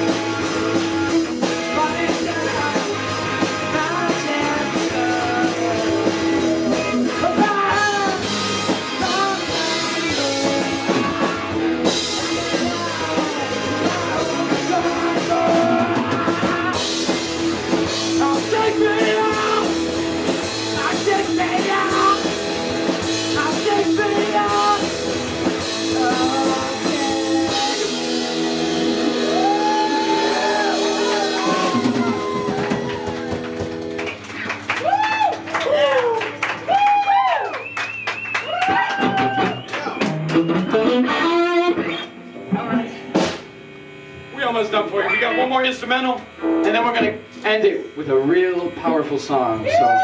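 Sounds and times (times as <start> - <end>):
drum kit: 0.0 - 45.2
electric guitar: 0.0 - 50.0
person singing: 1.6 - 17.2, 18.1 - 19.9, 20.7 - 22.4, 23.2 - 32.5.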